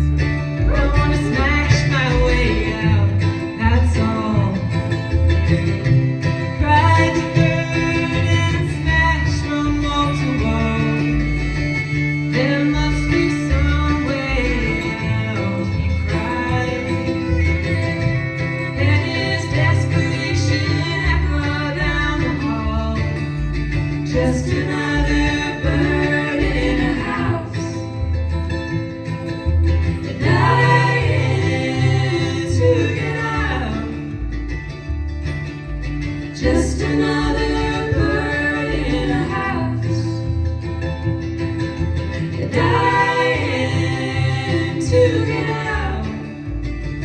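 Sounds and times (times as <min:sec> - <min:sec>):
acoustic guitar: 0:00.0 - 0:47.0
bass: 0:00.0 - 0:47.0
mandolin: 0:00.0 - 0:47.0
woman singing: 0:00.6 - 0:04.9, 0:06.6 - 0:23.4, 0:24.0 - 0:28.0, 0:30.0 - 0:34.2, 0:36.3 - 0:40.3, 0:42.3 - 0:46.6.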